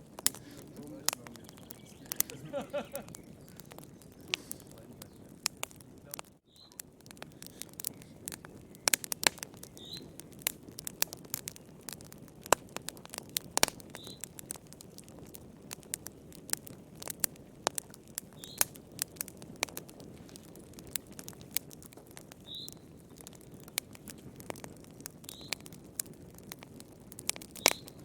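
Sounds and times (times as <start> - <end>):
low rush of flame: 0.0 - 22.4
wood fire crackling and popping: 0.0 - 28.0.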